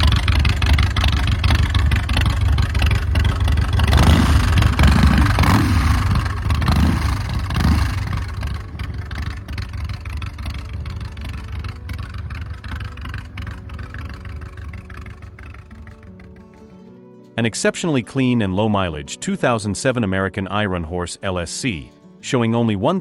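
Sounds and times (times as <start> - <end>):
motorcycle engine revving: 0.0 - 16.7.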